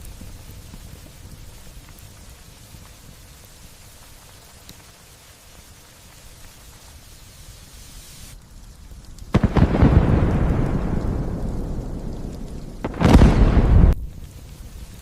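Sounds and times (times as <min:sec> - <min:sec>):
light rain hissing: 0:00.0 - 0:15.0
low rumble: 0:09.3 - 0:15.0.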